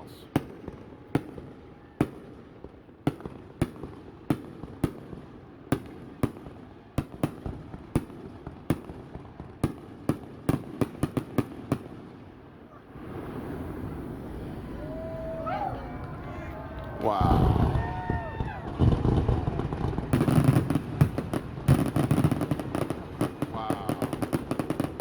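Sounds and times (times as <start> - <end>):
fireworks banging: 12.8 - 25.0.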